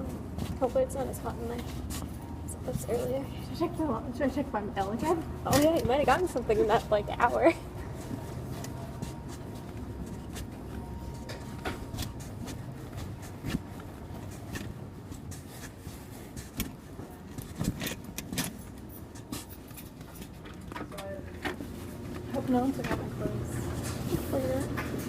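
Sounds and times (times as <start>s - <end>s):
steady low rumble: 0.0s - 19.9s.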